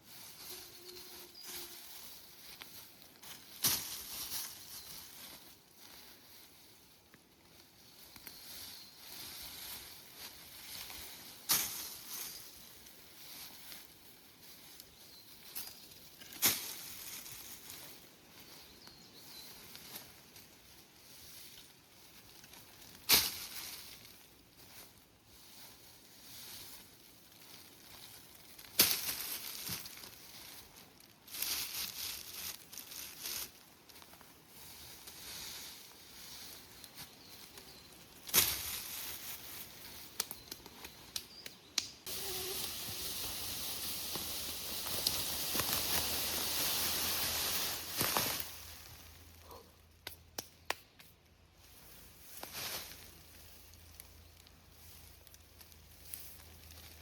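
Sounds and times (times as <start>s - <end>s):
leaves and brush rustling: 0.0s - 57.0s.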